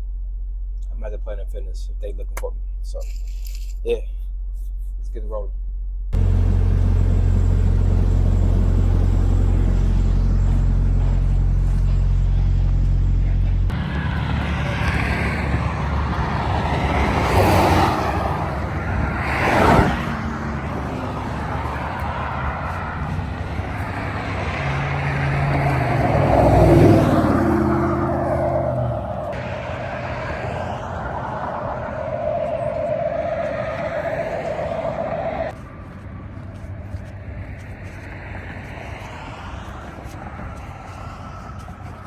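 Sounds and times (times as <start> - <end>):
steady low hum: 4.0 - 37.5
highway traffic passing: 6.2 - 42.0.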